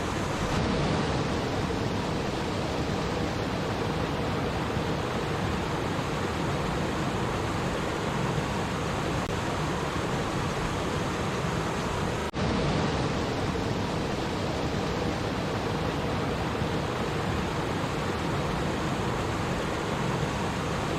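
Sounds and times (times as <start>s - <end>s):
stream water babbling: 0.0s - 20.9s.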